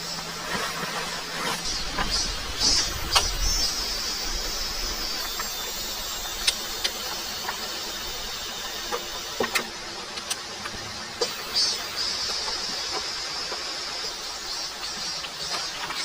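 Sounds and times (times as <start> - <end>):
heavy rain: 1.6 - 8.8.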